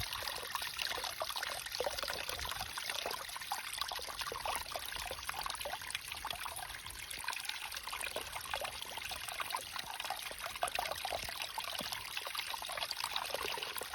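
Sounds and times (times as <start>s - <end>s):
running water trickling: 0.0s - 13.9s.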